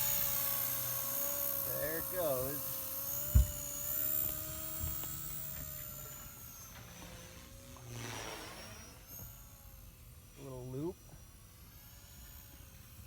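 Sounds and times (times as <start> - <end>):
model helicopter rotor whine: 0.0 - 13.0
low thump: 3.3 - 3.7.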